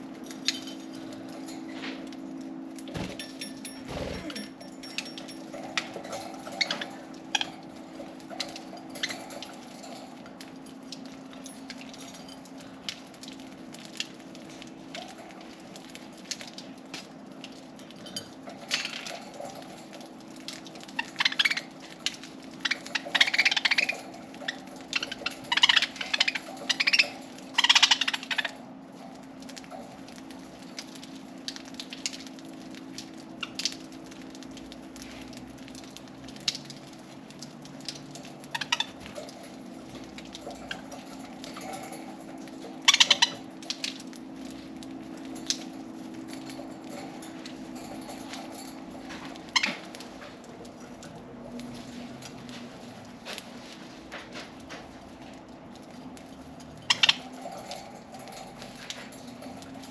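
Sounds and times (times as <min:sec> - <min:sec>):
budgerigars chirping and chattering: 0:22.6 - 0:28.6, 0:42.9 - 0:43.4, 0:56.8 - 0:57.4.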